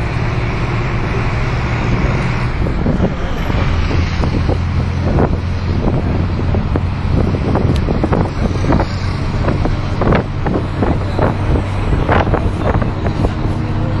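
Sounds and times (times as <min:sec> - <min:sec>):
heavy vehicle engine humming: 0:00.0 - 0:14.0.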